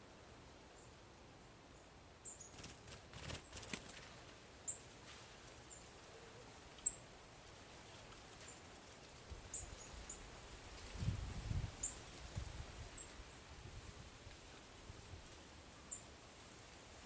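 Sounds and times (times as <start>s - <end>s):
small birds chirping: 1.7s - 4.9s, 5.6s - 7.1s, 7.8s - 10.3s.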